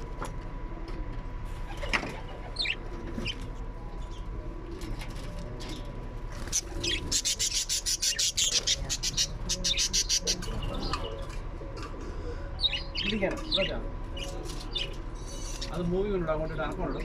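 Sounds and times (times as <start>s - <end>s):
small birds chirping: 2.4s - 4.4s, 5.6s - 11.4s, 12.4s - 17.0s.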